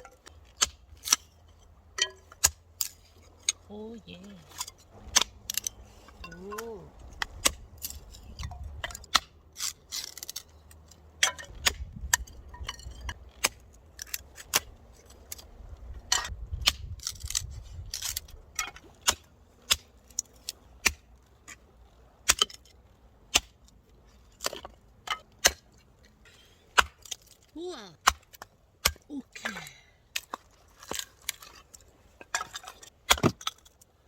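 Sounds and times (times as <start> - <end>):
wood cracking and splitting: 4.2 - 25.8, 26.7 - 34.0.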